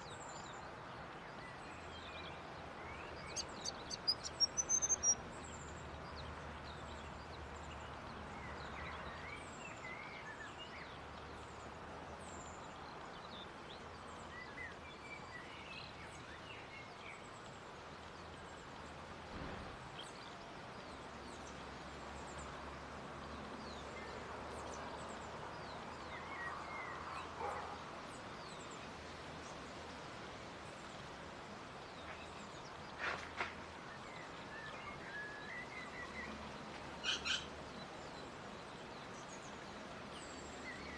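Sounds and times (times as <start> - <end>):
small birds chirping: 0.0 - 22.6, 23.2 - 40.9
outdoor background hiss: 0.0 - 40.9.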